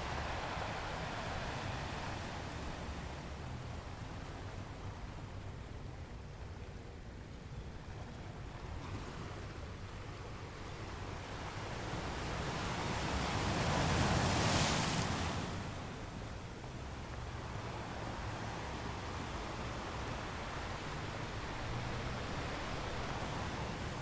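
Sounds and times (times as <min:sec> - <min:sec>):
ocean wave surging and washing back: 0:00.0 - 0:05.0, 0:11.0 - 0:24.0
low rumble of sea: 0:00.0 - 0:24.0.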